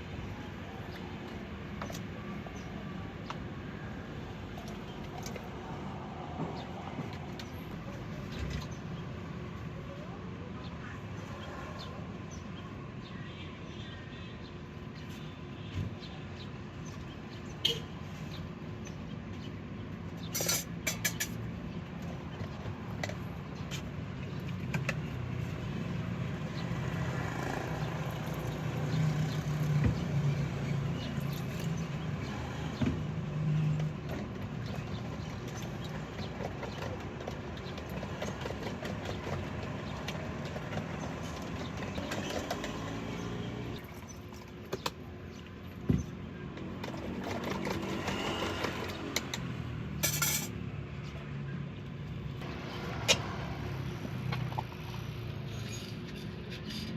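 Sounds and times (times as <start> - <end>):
roadside traffic: 0.0 - 56.9
motor vehicle humming nearby: 17.7 - 56.9.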